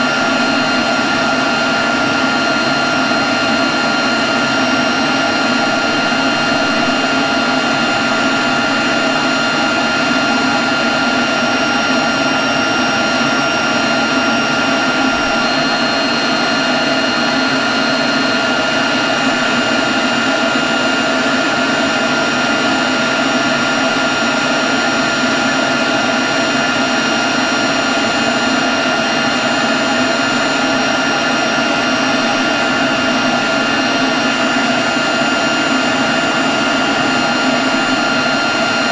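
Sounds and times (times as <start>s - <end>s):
leaf blower running: 0.0s - 38.9s.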